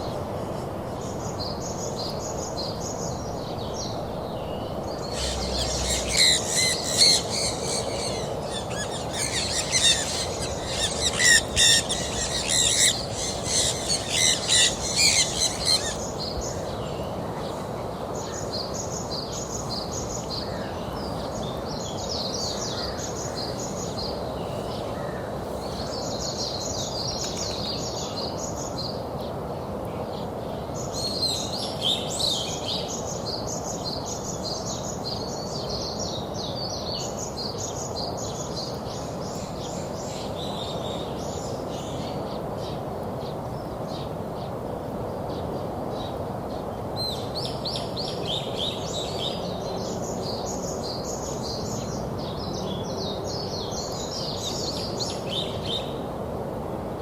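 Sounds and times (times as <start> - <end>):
steady background rumble: 3.4 - 18.4
flock of birds chirping: 4.7 - 18.4.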